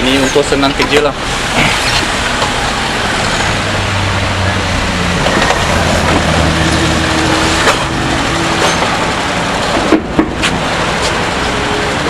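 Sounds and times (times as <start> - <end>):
vehicle noise: 0.0 - 12.0
low engine hum: 1.1 - 12.0
sharp clicks and knocks: 8.6 - 11.2.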